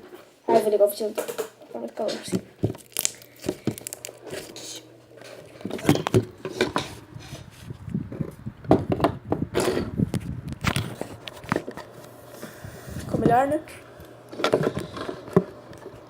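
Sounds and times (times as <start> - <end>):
electric fan humming: 0.0 - 16.0
small objects clattering on a table: 1.2 - 7.0.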